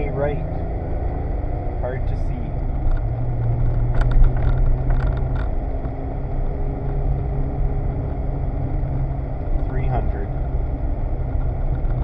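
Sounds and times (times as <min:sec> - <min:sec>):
rally car engine under load: 0:00.0 - 0:12.0
road noise: 0:00.0 - 0:12.0
knocks and rattles: 0:02.7 - 0:05.6.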